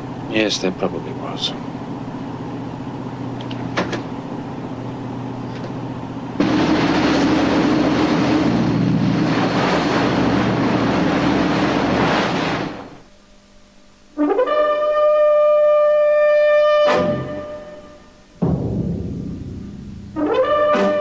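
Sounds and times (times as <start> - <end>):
boat engines droning: 0.0 - 13.2
heavy rushing water noise: 6.4 - 13.0.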